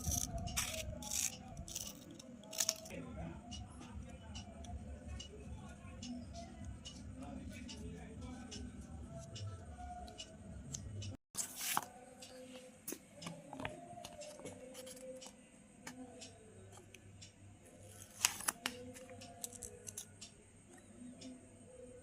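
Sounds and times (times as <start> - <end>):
scissors cutting paper: 0.0 - 2.9, 17.9 - 20.1.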